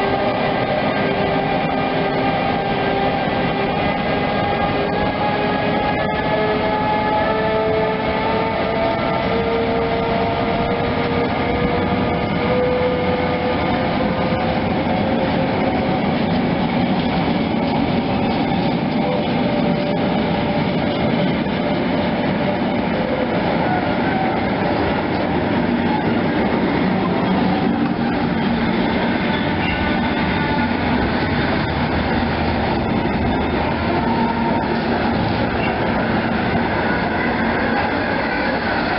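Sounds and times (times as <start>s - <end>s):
train rolling on track: 0.0s - 38.9s.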